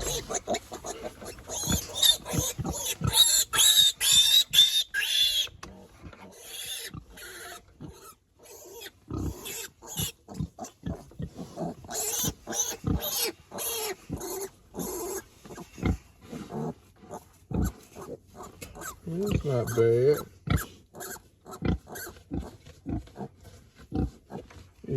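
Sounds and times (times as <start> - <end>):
piglets squealing: 0.0 - 5.5, 11.9 - 15.2, 18.4 - 22.2.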